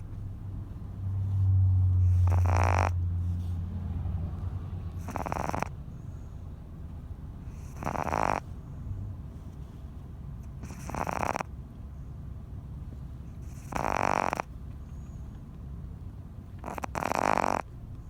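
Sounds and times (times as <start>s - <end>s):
low steady hum: 0.0s - 2.3s
dog snoring: 1.2s - 3.6s, 4.9s - 6.2s, 7.4s - 8.7s, 10.4s - 11.5s, 13.3s - 14.6s, 16.6s - 17.7s.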